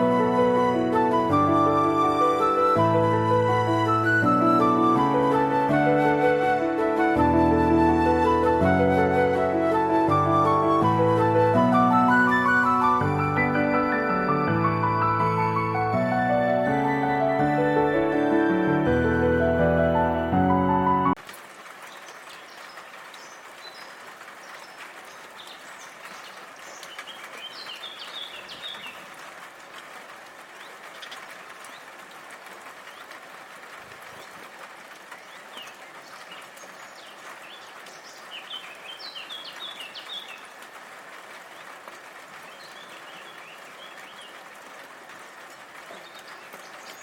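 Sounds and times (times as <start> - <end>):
rain hissing: 0.0 - 47.0
birds chirping: 21.9 - 29.3, 35.0 - 40.8, 41.5 - 44.6, 45.8 - 47.0.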